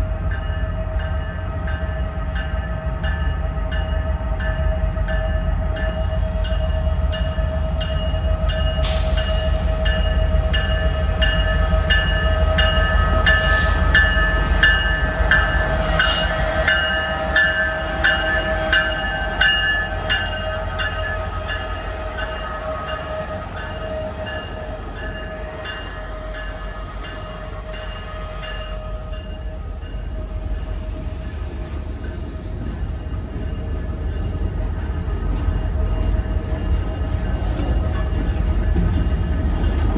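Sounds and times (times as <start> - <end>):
train rumbling past: 0.0 - 39.9
hiss: 8.8 - 9.7, 13.3 - 14.0, 28.9 - 34.9.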